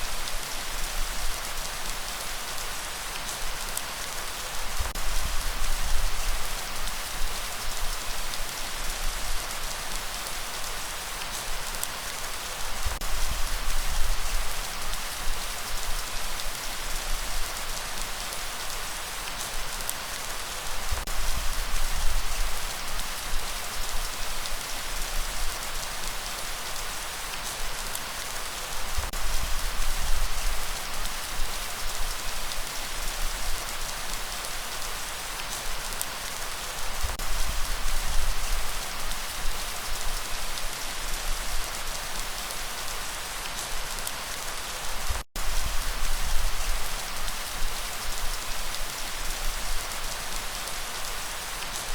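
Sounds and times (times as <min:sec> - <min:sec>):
heavy rain: 0:00.0 - 0:51.9.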